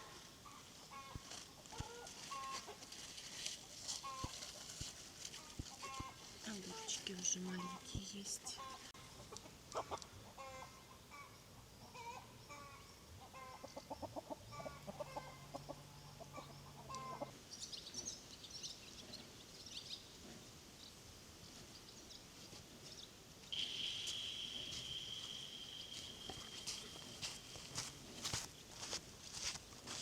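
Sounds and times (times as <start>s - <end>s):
hens clucking: 0.1s - 17.4s
steady high-pitched tone: 23.5s - 28.0s.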